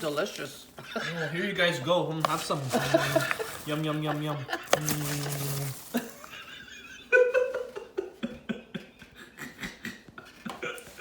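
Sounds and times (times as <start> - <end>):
popcorn crunching: 2.2 - 6.4.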